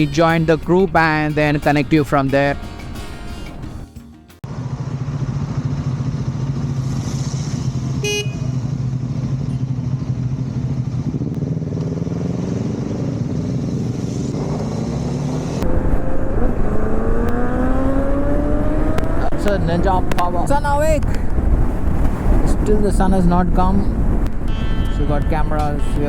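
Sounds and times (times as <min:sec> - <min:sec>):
motorcycle engine running: 0:02.6 - 0:22.3
short horn toot: 0:07.9 - 0:08.7, 0:24.5 - 0:26.0.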